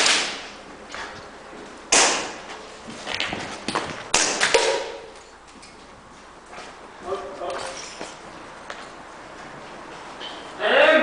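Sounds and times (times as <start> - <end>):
airsoft gun shots: 0.0 - 0.5, 1.9 - 2.4, 4.1 - 5.1.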